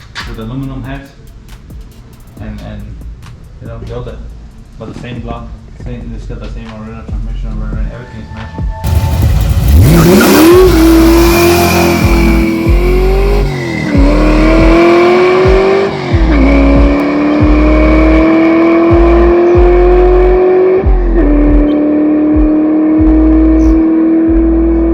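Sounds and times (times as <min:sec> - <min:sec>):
music with steady beat: 0:00.0 - 0:24.9
car engine accelerating: 0:08.8 - 0:24.9.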